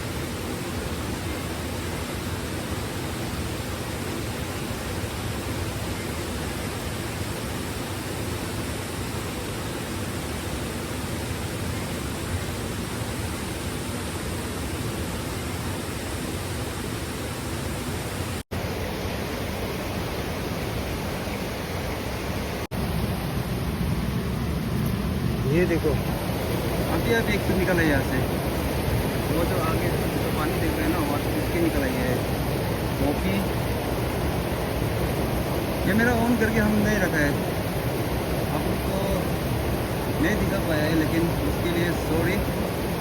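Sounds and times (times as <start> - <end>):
fast-flowing river water: 0.0 - 43.0.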